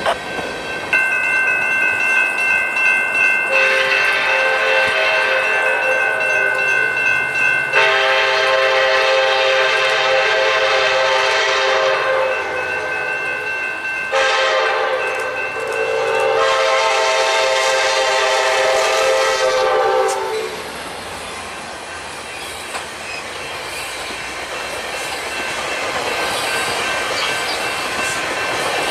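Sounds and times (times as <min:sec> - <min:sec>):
higher steady horn chord: 0:03.5 - 0:06.5, 0:07.8 - 0:12.4, 0:14.1 - 0:15.1, 0:15.9 - 0:20.5
train air horn blasts: 0:03.5 - 0:06.5, 0:07.7 - 0:12.6, 0:14.1 - 0:20.7.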